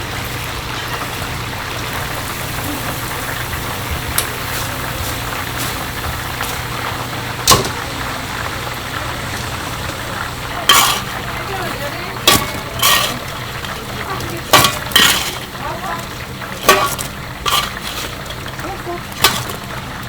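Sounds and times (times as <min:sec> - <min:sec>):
kitchen machinery humming: 0:00.0 - 0:20.0.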